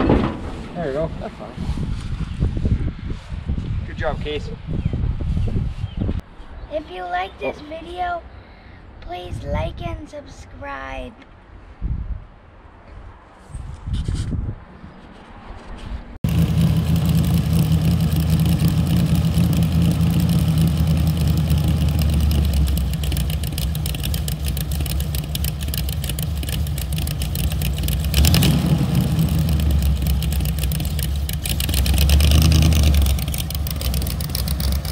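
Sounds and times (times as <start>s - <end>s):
vehicle engine idling and revving: 16.2s - 34.9s.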